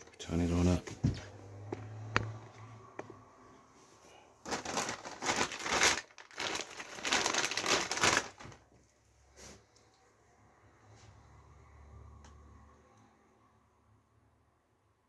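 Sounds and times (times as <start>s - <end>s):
plastic packaging crinkling: 4.4s - 8.7s.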